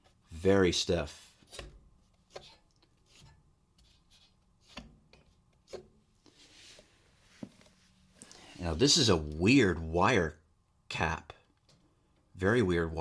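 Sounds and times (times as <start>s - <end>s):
light handling knocks and rubbing: 1.4s - 8.4s.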